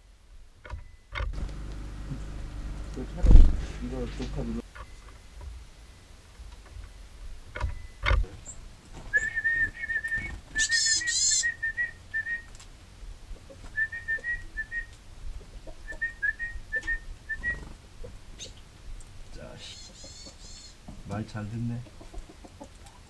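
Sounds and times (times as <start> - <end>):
man whistling trilled notes: 9.1 - 12.5, 13.7 - 14.9, 15.9 - 17.6
harsh bird call: 10.6 - 11.6.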